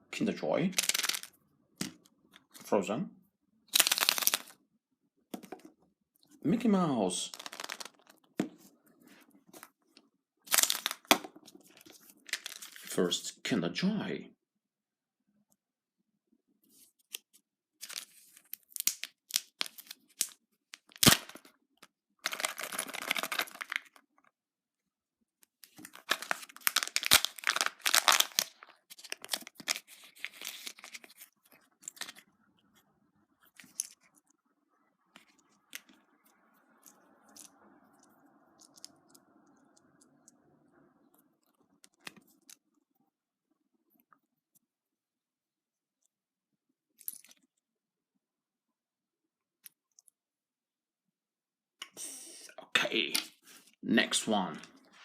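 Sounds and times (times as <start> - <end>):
plastic wrapper tearing and crinkling: 0.8 - 1.3, 3.7 - 4.6, 7.3 - 8.2, 10.5 - 12.9, 17.8 - 21.5, 22.2 - 24.0, 25.7 - 32.2.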